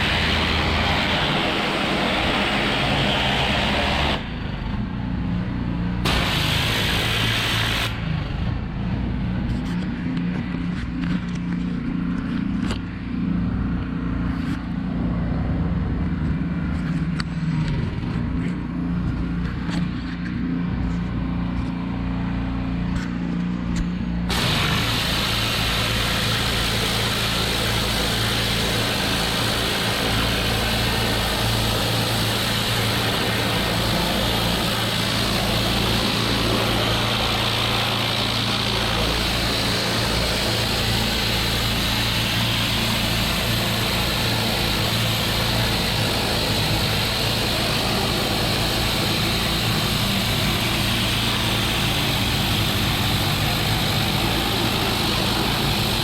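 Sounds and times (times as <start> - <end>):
loud steady hiss: 0.0 - 4.7, 6.0 - 8.5, 24.3 - 56.0
pressure washer engine drone: 0.0 - 56.0.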